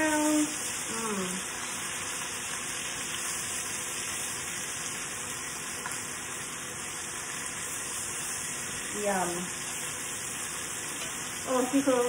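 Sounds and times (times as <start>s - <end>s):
vegetables sizzling in fat: 0.0s - 12.0s.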